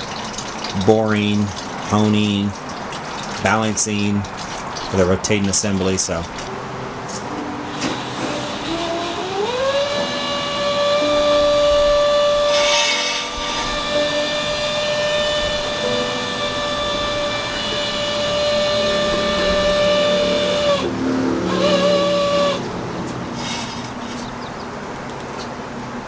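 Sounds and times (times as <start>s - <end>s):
small motor whining: 6.3s - 24.8s.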